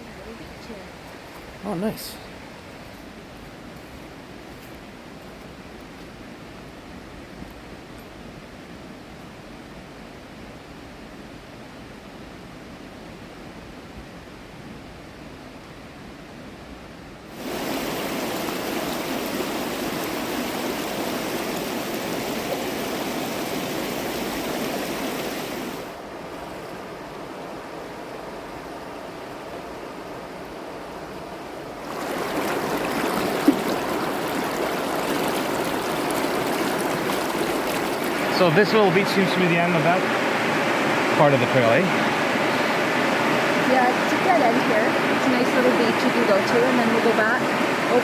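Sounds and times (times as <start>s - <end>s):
river water rushing over rocks: 17.4s - 48.0s.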